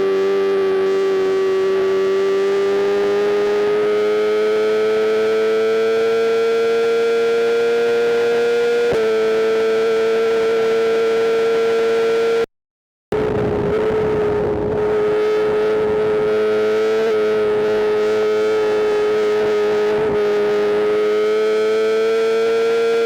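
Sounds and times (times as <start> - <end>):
motorcycle engine at high revs: 0.0 - 12.5, 13.1 - 23.0
rushing wind noise: 13.1 - 16.7.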